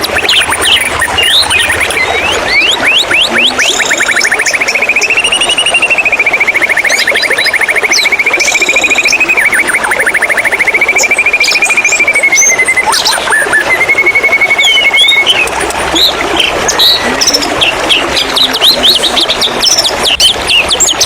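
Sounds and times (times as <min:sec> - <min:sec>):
high bird whistles and chips: 0:00.0 - 0:15.5
bird singing fast trill: 0:00.0 - 0:21.0.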